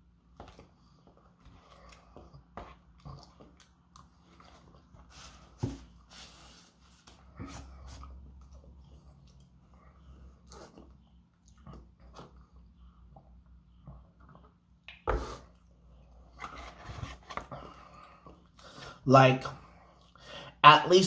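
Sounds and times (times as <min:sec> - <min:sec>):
chewing and eating: 0:00.3 - 0:05.1, 0:07.8 - 0:16.5.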